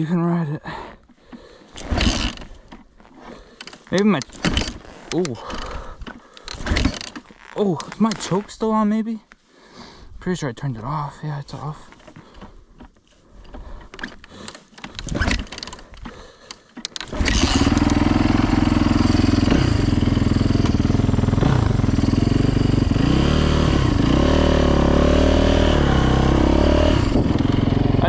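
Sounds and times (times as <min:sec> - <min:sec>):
dirt bike engine revving: 0:01.8 - 0:02.5, 0:17.0 - 0:28.0.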